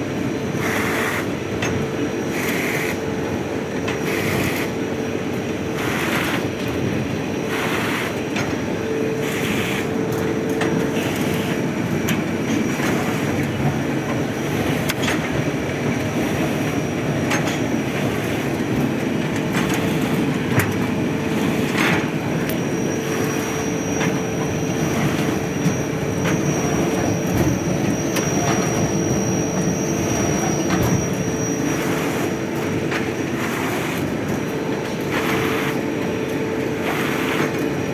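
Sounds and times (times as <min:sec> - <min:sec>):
thin high whine: 0:21.3 - 0:32.8.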